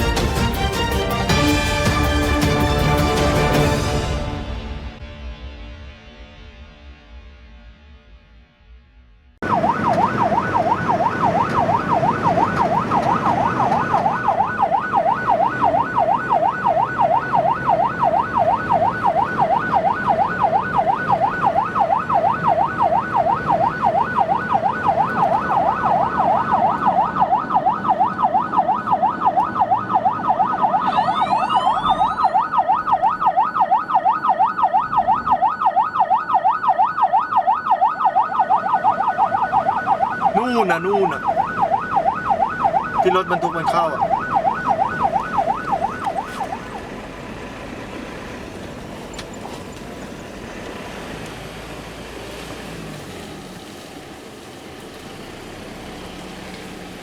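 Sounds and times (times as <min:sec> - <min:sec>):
upward sweeping siren tone: 0:09.4 - 0:47.2
siren yelping: 0:09.4 - 0:47.3.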